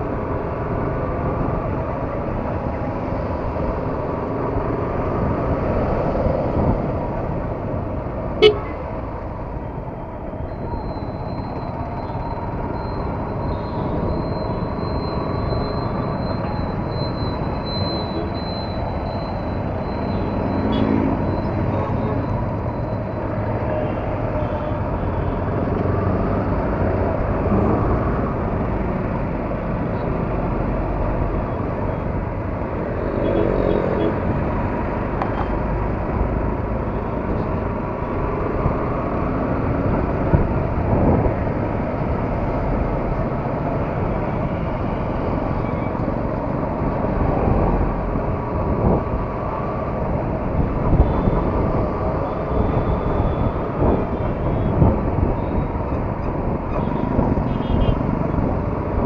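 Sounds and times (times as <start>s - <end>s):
road noise: 0.0s - 59.0s
wind rush on microphone: 35.9s - 59.0s.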